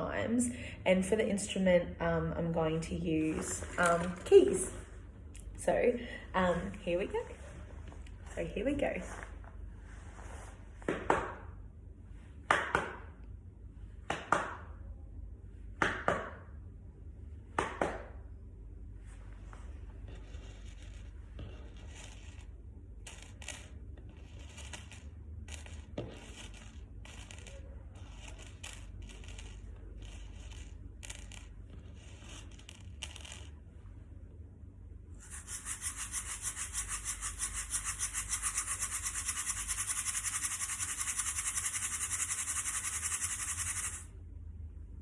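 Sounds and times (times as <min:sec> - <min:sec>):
shaker rattling: 0:21.6 - 0:33.5, 0:35.2 - 0:44.1
small hard objects clicking: 0:35.3 - 0:44.0.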